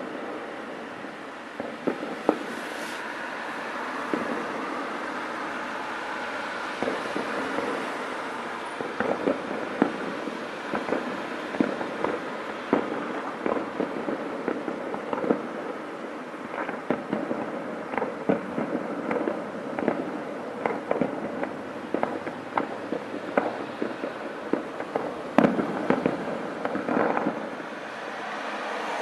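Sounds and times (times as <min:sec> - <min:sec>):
continuous hiss: 0:00.0 - 0:29.0
fireworks bangs and crackles: 0:00.0 - 0:29.0.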